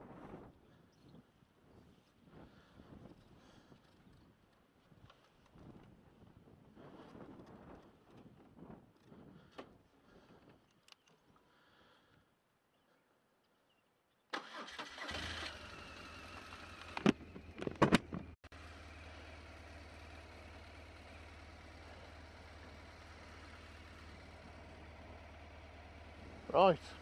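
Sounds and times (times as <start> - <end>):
motorcycle engine starting and idling: 14.3 - 27.0.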